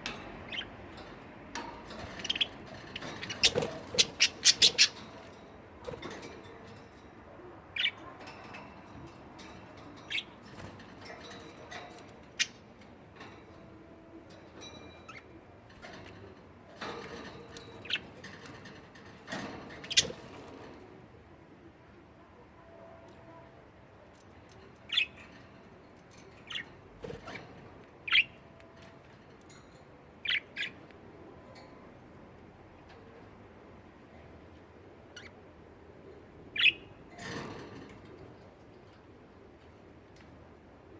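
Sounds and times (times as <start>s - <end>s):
budgerigars chirping and squawking: 1.9s - 5.3s, 7.7s - 8.0s, 19.8s - 20.3s, 26.4s - 28.4s, 36.5s - 36.9s
budgerigars chattering: 2.1s - 5.1s.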